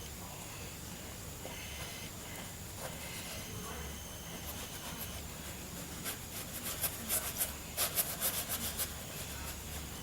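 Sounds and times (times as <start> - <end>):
paintbrush scrubbing: 4.5 - 10.0.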